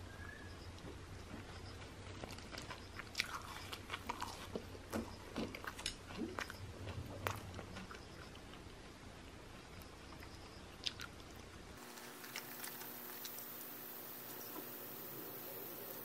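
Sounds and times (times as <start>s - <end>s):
small crunches: 1.2s - 8.8s, 10.1s - 15.0s
person chewing food: 1.3s - 8.8s, 9.7s - 13.4s.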